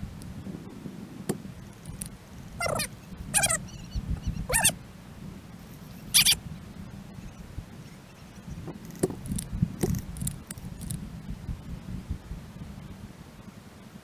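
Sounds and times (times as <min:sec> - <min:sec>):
sharp clicks: 0:01.3 - 0:03.6, 0:08.8 - 0:11.0
sped-up squeaky voices: 0:02.6 - 0:03.6, 0:04.5 - 0:04.7, 0:06.0 - 0:06.4.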